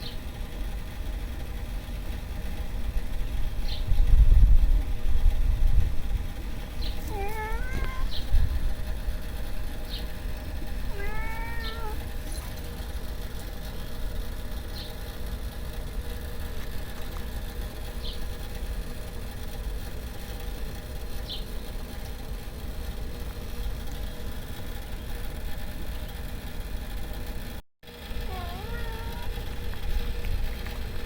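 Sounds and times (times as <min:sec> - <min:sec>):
steady low rumble: 0:01.0 - 0:14.7
cat meowing: 0:07.0 - 0:08.2, 0:10.9 - 0:12.0, 0:28.3 - 0:29.3.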